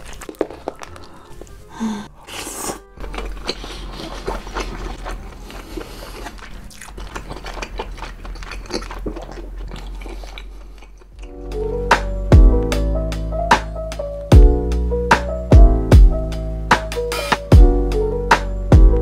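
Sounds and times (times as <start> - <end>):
wet chewing with small clicks: 0.0 - 1.7, 3.0 - 11.4.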